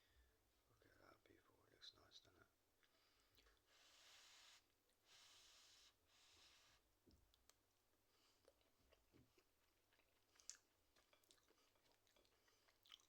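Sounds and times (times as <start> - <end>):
faint chewing: 2.8 - 3.8, 7.0 - 13.0.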